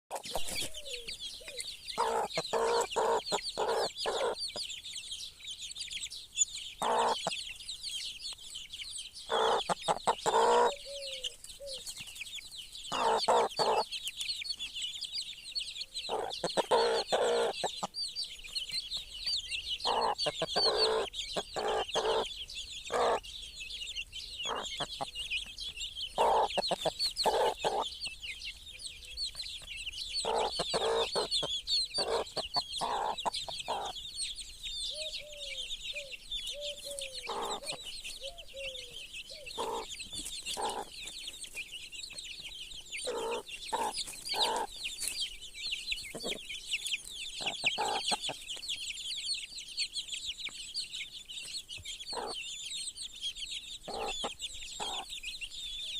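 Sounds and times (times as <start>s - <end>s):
hen clucking: 0.1s - 4.8s, 6.8s - 7.6s, 9.2s - 11.8s, 12.9s - 14.0s, 16.0s - 18.0s, 19.8s - 23.3s, 24.4s - 28.2s, 30.1s - 34.1s, 34.9s - 41.5s, 43.0s - 45.2s, 46.0s - 48.6s, 52.1s - 52.4s, 53.8s - 55.2s
chicks peeping: 0.1s - 55.9s.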